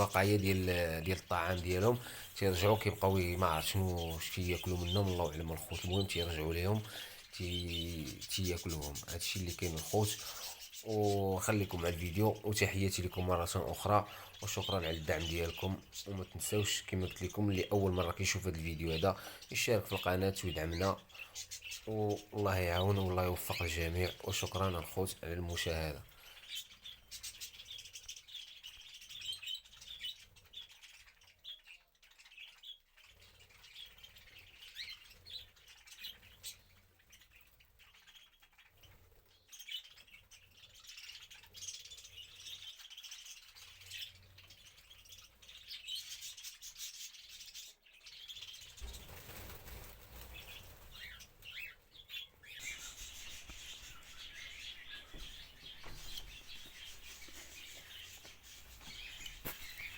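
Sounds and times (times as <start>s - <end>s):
pet birds chirping: 0.0s - 59.9s
soft scratching and clicking: 52.5s - 59.9s.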